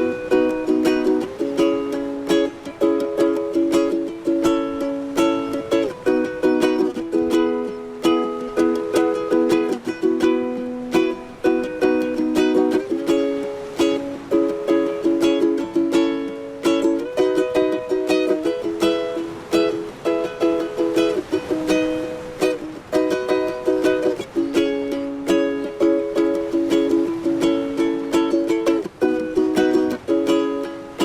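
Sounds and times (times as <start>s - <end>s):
ukulele music: 0.0s - 31.0s.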